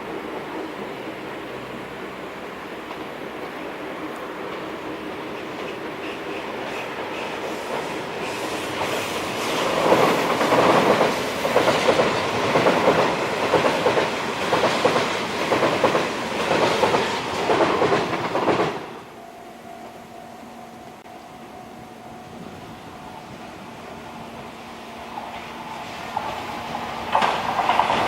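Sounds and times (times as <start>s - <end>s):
train wheels clattering over joints: 5.4s - 19.0s, 26.1s - 28.0s.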